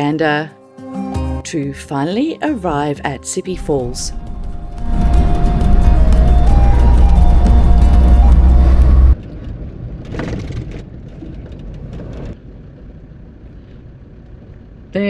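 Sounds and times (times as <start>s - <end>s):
music with heavy bass: 3.6s - 9.2s
vehicle driving on road: 3.6s - 13.0s.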